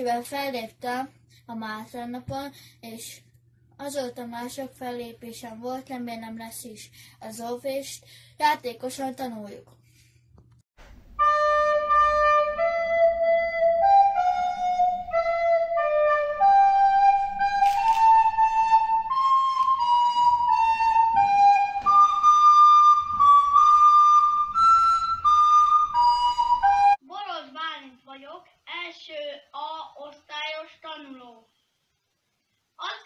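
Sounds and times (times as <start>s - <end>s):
recorder playing a tune: 11.1s - 27.0s.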